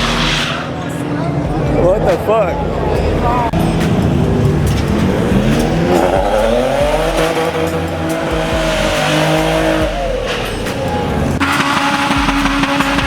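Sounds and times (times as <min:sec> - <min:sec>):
car engine revving: 0:00.0 - 0:13.0
tyres squealing: 0:03.0 - 0:13.0.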